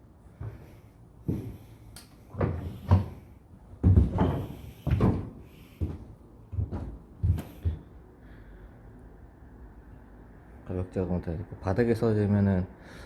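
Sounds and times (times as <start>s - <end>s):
wooden knocks and thuds: 2.3s - 7.8s.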